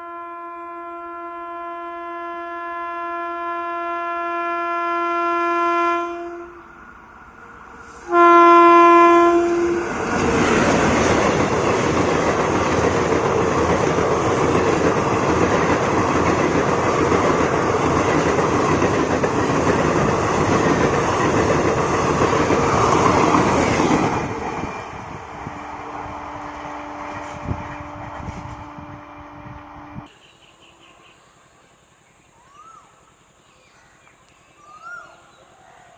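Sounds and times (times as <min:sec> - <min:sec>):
locomotive horn blast: 0:00.0 - 0:06.7, 0:08.0 - 0:10.1, 0:25.8 - 0:30.1
train wheels rushing on rails: 0:06.6 - 0:29.0.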